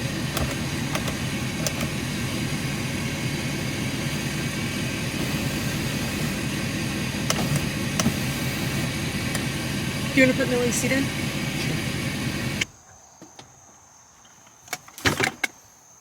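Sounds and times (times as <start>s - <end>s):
truck engine low rumble: 0.0s - 12.7s.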